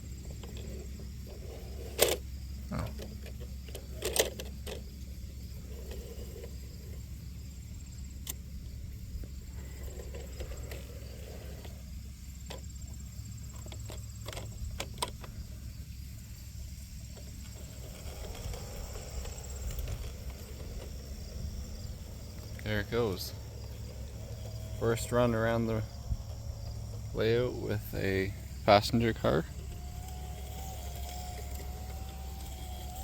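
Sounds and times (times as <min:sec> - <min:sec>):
faint high insect buzz: 0:00.0 - 0:33.0
low steady hum: 0:00.0 - 0:33.0
model train clicks and knocks: 0:02.9 - 0:04.9.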